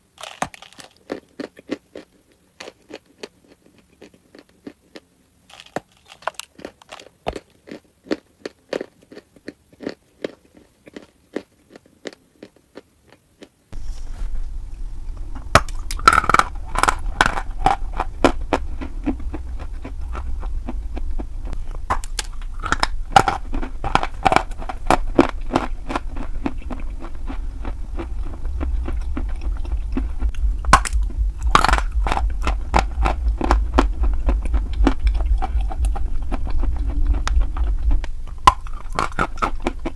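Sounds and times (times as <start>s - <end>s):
steady low hum: 13.7s - 39.9s.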